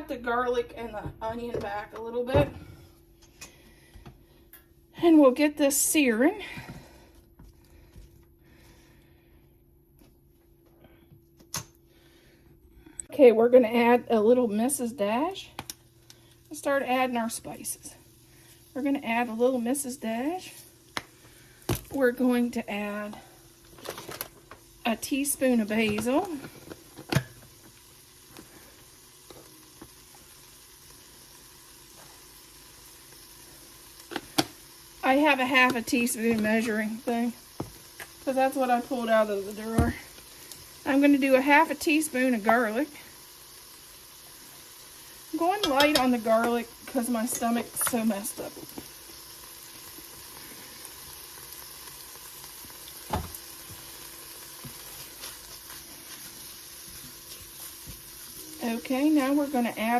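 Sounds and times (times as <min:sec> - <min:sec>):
onion and garlic sizzling in oil: 0:13.5 - 0:59.9.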